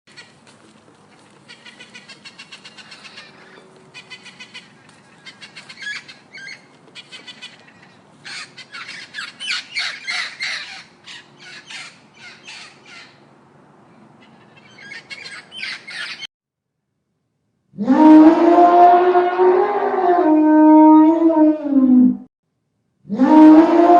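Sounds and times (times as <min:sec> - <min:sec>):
birds squawking: 0:00.1 - 0:13.3, 0:14.1 - 0:16.3.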